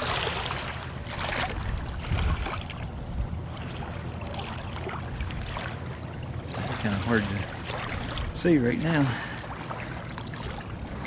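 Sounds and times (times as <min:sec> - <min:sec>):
river water lapping: 0:00.0 - 0:11.0
wind buffeting microphone: 0:00.9 - 0:03.5.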